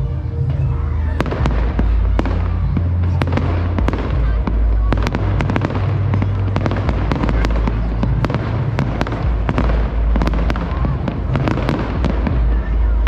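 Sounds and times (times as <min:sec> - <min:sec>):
deep rumbling booms: 0:00.0 - 0:13.0
fireworks cracking and popping: 0:00.6 - 0:13.0.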